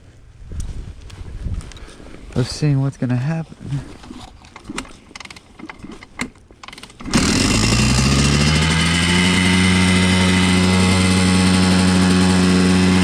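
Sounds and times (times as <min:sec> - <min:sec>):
two-stroke motorcycle engine: 0:06.6 - 0:13.0.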